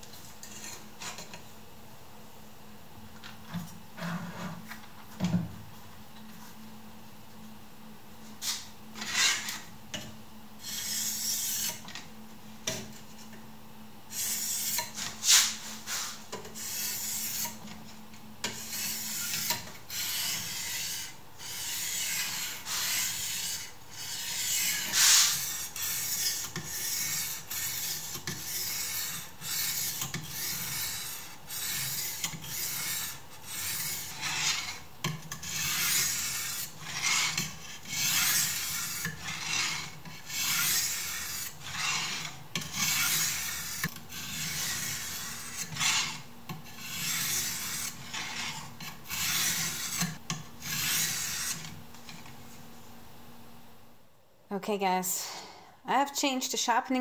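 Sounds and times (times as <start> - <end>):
knife rasping on sharpening stone: 18.4 - 46.2, 46.8 - 51.7.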